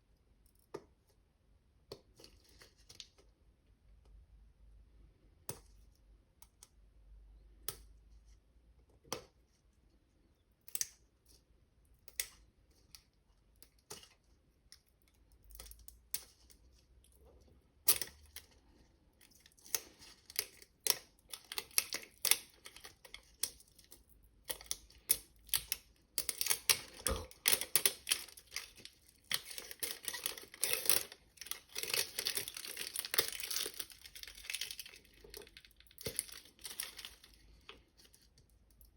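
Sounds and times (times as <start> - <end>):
wrapping crinkling and rustling: 2.1 - 3.3, 12.7 - 38.9.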